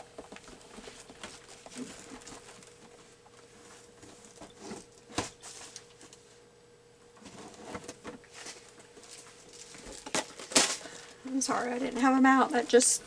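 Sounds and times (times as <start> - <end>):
craft supplies clicking and rustling: 9.0 - 11.2.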